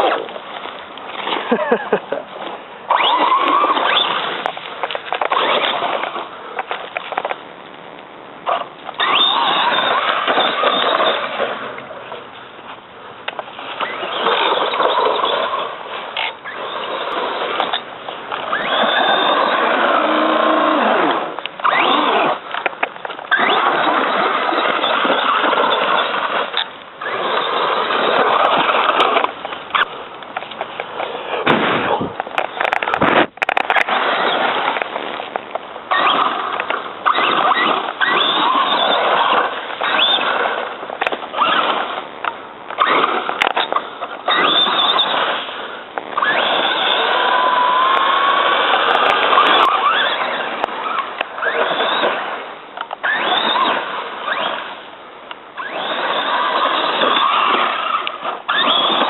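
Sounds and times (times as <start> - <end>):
rc truck motor whining: 2.9 - 6.2, 8.5 - 11.5, 13.8 - 22.6, 23.3 - 29.9, 35.9 - 42.0, 42.7 - 52.3, 53.0 - 54.8, 55.6 - 59.0.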